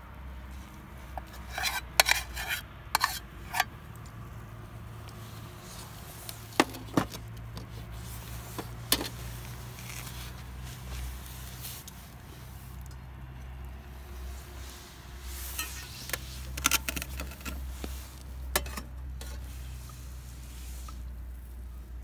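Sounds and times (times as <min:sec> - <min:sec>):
metal cookware clinking: 0:18.6 - 0:18.9.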